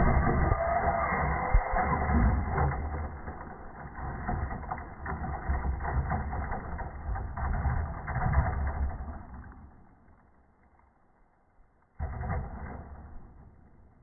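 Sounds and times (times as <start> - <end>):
electric rc truck motor whining: 0.0 - 5.0.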